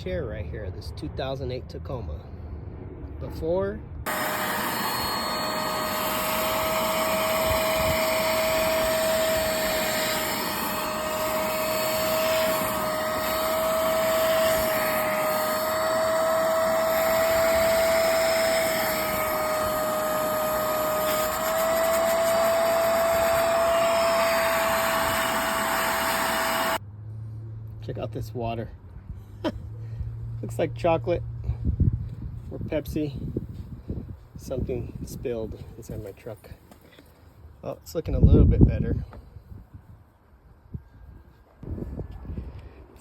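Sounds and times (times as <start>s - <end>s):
carpet cleaner suction whine: 4.1s - 26.8s.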